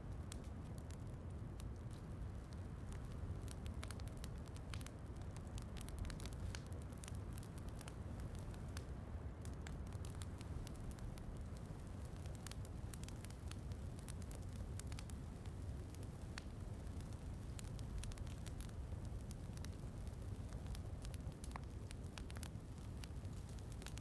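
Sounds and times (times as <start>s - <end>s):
low rumbling fire noise: 0.0s - 24.0s
wood fire pops and snaps: 0.3s - 24.0s.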